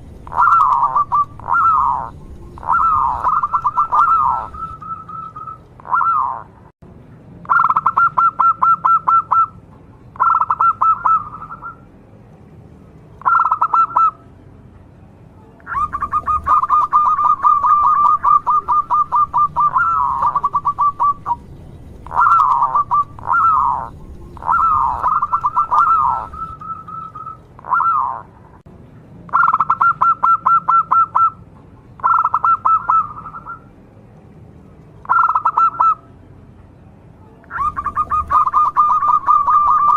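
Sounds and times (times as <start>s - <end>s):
dove cooing: 0.2s - 6.5s, 7.5s - 9.6s, 10.2s - 11.8s, 13.2s - 14.2s, 15.7s - 28.3s, 32.0s - 33.6s, 35.1s - 36.0s, 37.5s - 39.9s.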